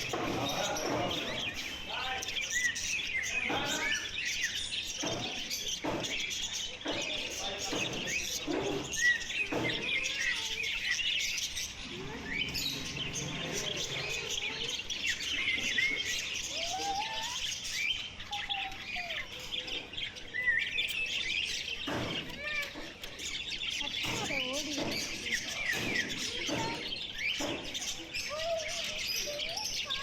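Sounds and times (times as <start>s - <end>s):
small birds chirping and twittering: 0.0s - 30.0s.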